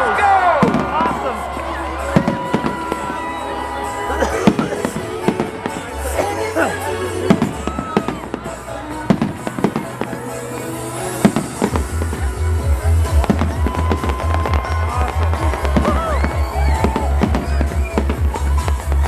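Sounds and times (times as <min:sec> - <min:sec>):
fireworks bangs and crackles: 0:00.0 - 0:06.2, 0:07.3 - 0:19.0
music with heavy bass beat: 0:07.2 - 0:19.0.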